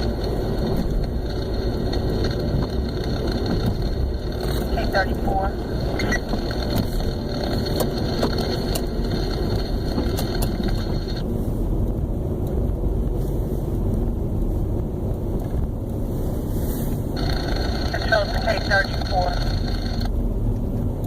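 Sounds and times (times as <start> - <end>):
road and engine rumble: 0.0 - 21.0
radio hiss: 4.7 - 5.6, 17.2 - 20.1.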